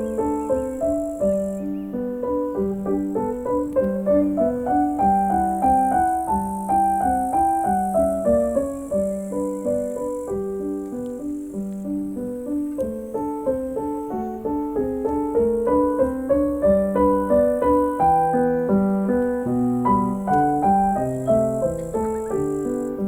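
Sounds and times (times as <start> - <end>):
gentle piano music: 0.0 - 23.0.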